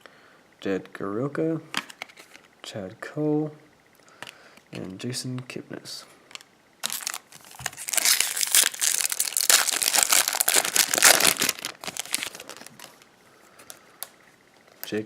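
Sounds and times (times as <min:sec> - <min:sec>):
foil wrapper crinkling and tearing: 0:06.8 - 0:13.0.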